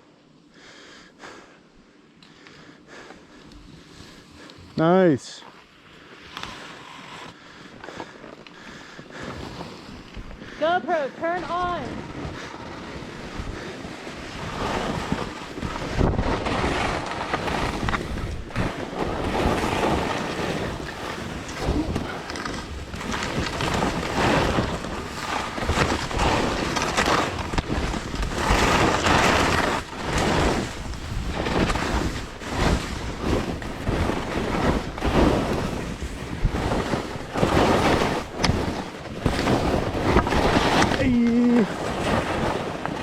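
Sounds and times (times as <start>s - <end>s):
skis scraping snow: 3.6s - 43.0s
wind rushing over microphone: 11.6s - 42.9s.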